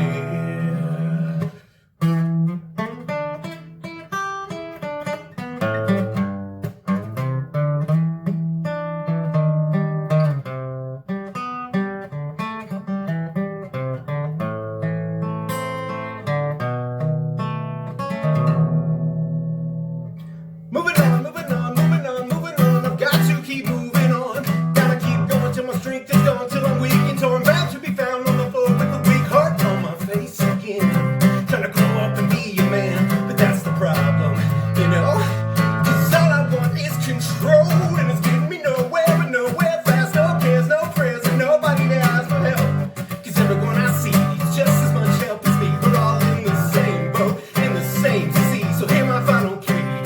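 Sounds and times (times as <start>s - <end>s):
person singing: 0.0s - 1.7s, 20.7s - 50.0s
acoustic guitar playing: 0.0s - 50.0s.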